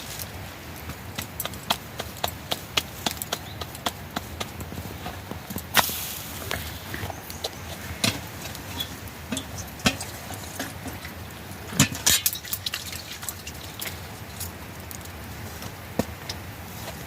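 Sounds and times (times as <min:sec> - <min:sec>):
steady hiss: 0:00.0 - 0:17.0
kitchen pots and dishes clinking: 0:08.0 - 0:13.6.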